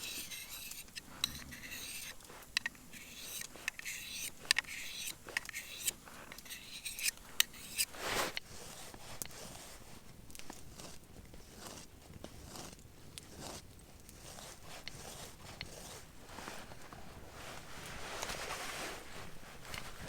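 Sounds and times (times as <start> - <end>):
scraping strokes: 0.0 - 20.0
sharp clicks and knocks: 0.3 - 7.8.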